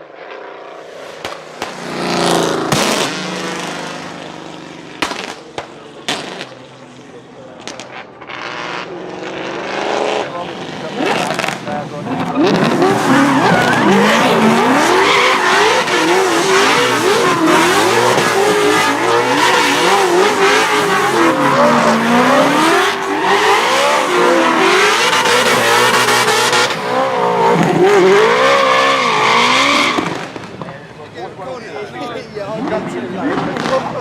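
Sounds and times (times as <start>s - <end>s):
car engine revving hard: 0.2s - 5.4s, 7.7s - 30.5s, 32.6s - 34.0s.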